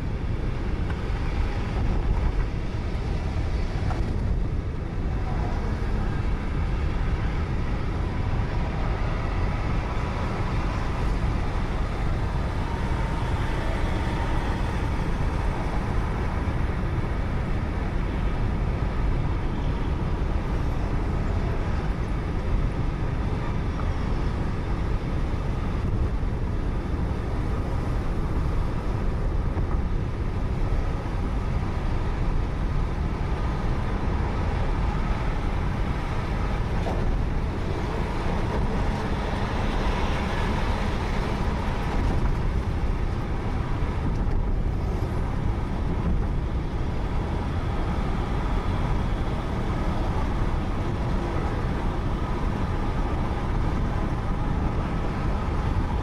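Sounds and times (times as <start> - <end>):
engine and tyre rumble: 0.0 - 56.0.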